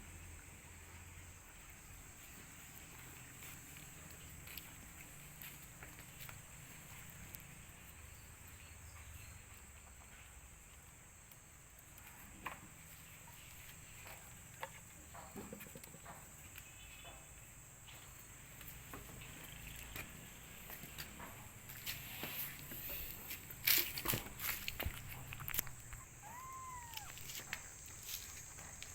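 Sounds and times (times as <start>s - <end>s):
high-pitched insect chirring: 25.4s - 28.9s.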